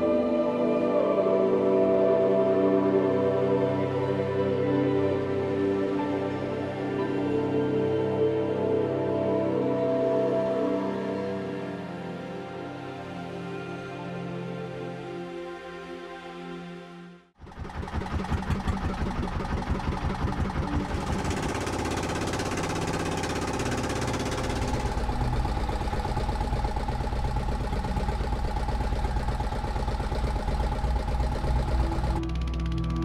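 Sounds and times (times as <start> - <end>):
motorboat engine running: 17.4 - 33.0.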